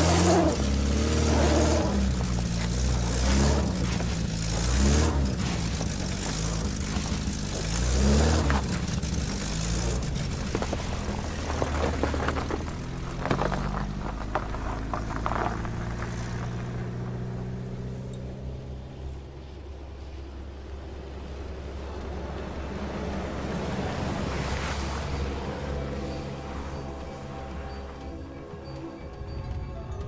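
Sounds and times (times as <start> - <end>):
car engine revving: 0.0 - 19.2.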